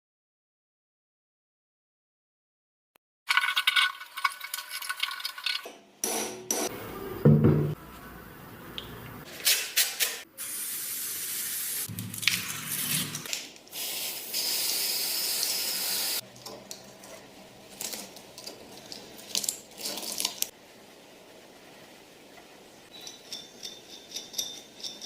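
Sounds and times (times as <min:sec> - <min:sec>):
spray hissing: 0:09.5 - 0:12.0, 0:12.6 - 0:16.2.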